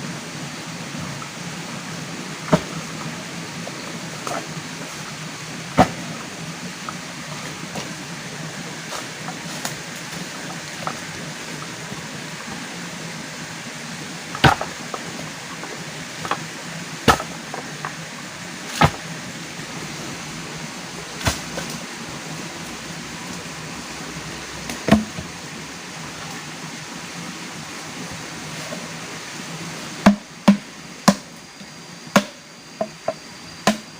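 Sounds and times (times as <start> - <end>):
steady rushing hiss: 0.0 - 33.9
tool striking wood: 14.4 - 14.7, 17.1 - 17.4, 24.9 - 25.1, 30.0 - 31.3, 32.2 - 33.0, 33.6 - 33.8.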